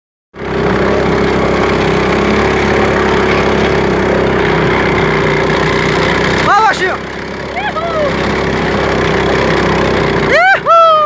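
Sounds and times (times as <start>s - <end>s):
small engine running roughly: 0.4s - 11.0s.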